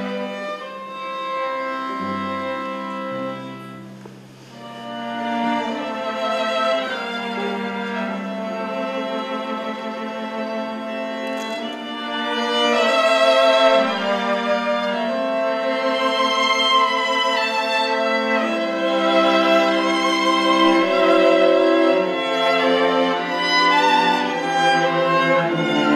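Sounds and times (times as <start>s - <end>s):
violin melody: 0.0s - 25.9s.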